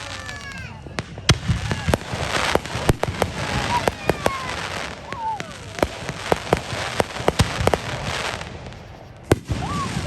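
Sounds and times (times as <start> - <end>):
fireworks cracking and popping: 0.0 - 10.0.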